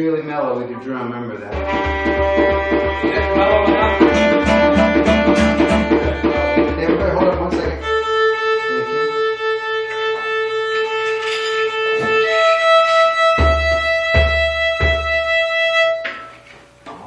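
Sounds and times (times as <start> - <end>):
deep drum hits: 1.5 - 7.9, 13.4 - 15.3
sustained melodic instrument: 1.5 - 16.0.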